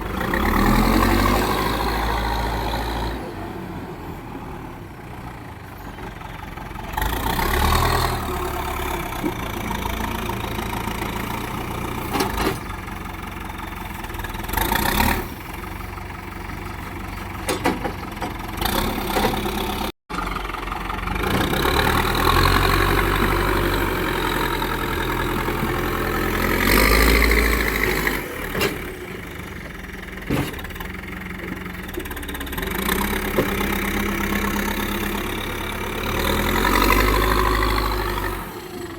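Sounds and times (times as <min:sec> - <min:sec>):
diesel engines revving: 0:00.0 - 0:38.9
sharp knocks and clanks: 0:16.9 - 0:19.5, 0:30.2 - 0:32.2.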